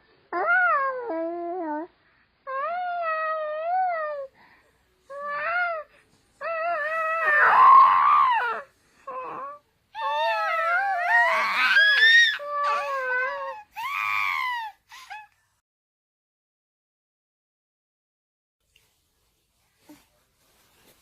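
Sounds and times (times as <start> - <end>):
baby babbling and cooing: 9.2 - 15.3.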